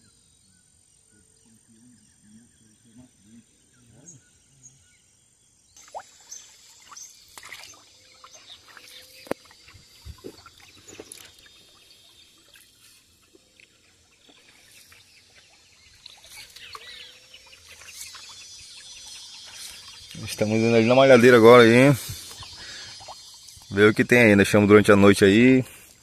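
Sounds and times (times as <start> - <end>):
birds chirping and whistling: 6.1 - 25.8.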